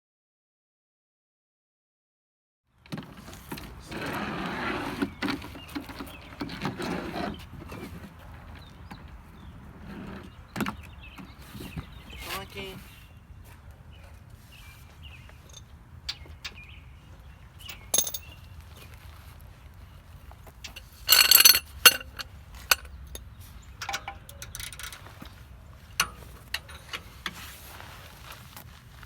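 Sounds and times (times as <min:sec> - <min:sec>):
metal tools clinking: 0:17.6 - 0:18.4, 0:20.6 - 0:25.4, 0:26.0 - 0:27.4.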